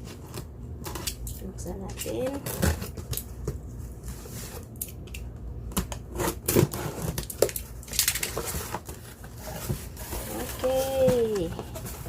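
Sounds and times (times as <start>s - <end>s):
cardboard and plastic crackling: 0.0s - 12.0s.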